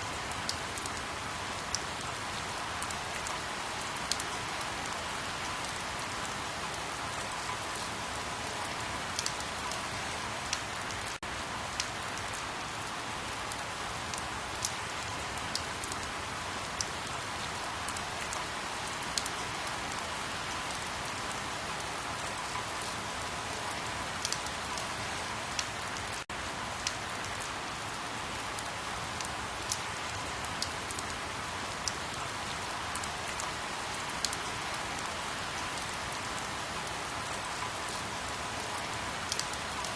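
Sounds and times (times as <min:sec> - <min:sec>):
steady rain falling: 0:00.0 - 0:39.9
raindrops ticking: 0:14.1 - 0:16.1.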